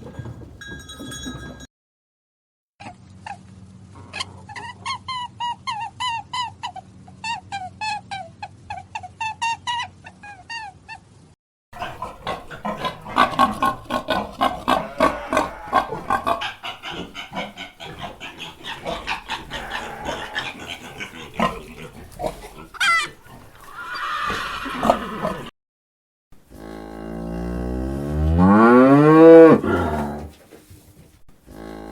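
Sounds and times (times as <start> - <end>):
pigs grunting and oinking: 11.8 - 25.5, 26.5 - 30.4, 31.4 - 31.9.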